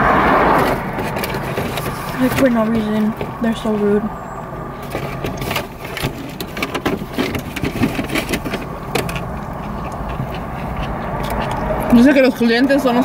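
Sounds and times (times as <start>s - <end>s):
low car hum: 0.0s - 13.0s
paper wrappers crackling: 0.6s - 4.1s, 4.8s - 13.0s
people chewing: 4.9s - 13.0s.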